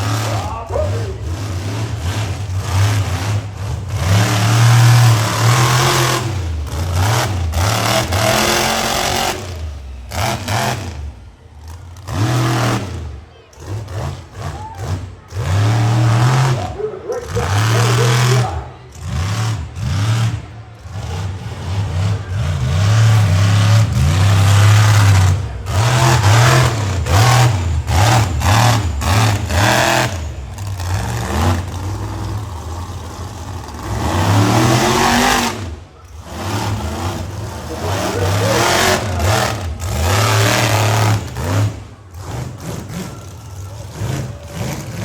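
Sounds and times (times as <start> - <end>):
truck engine revving hard: 0.0 - 45.0.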